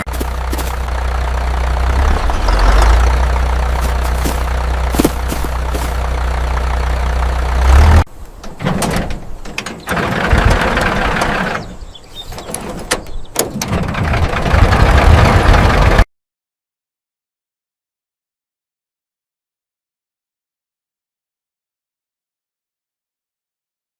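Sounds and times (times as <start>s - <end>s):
tractor engine humming: 0.0s - 16.0s.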